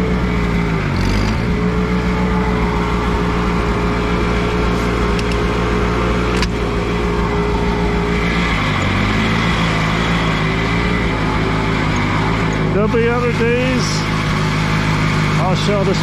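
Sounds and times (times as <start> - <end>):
tractor engine running: 0.0 - 16.0
sharp click: 6.3 - 6.6.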